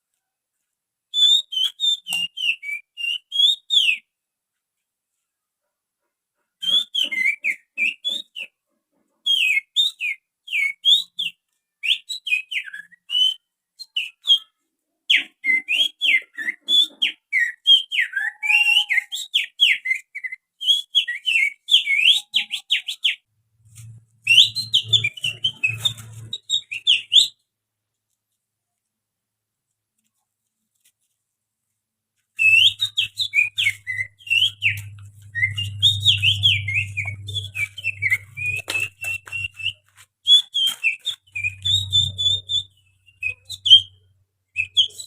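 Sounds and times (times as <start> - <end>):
person whistling bird song: 15.2 - 23.2, 24.2 - 27.4, 32.4 - 43.9, 44.6 - 45.0.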